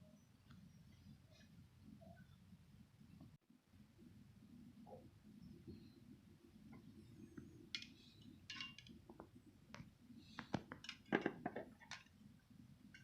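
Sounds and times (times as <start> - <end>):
tableware clinking: 7.8 - 8.9.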